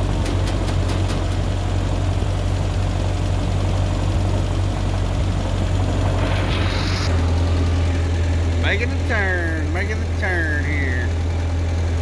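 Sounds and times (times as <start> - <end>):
tractor engine running: 0.0 - 12.0
brief hiss: 6.0 - 7.3.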